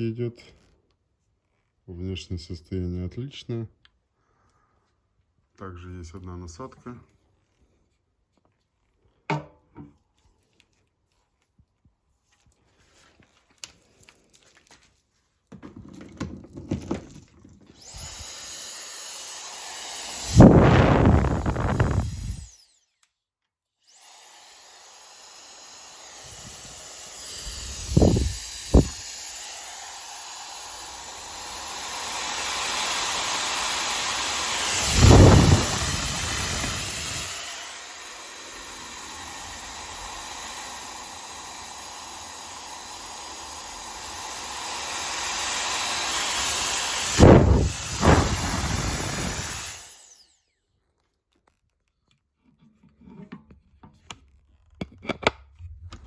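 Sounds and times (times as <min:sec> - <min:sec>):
hair dryer running: 0:17.8 - 0:22.6, 0:23.9 - 0:50.2.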